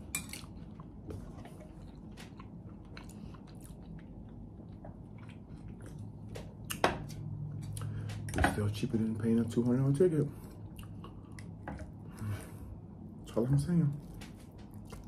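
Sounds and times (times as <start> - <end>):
chewing and biting food: 0.2 - 8.2, 14.0 - 15.0.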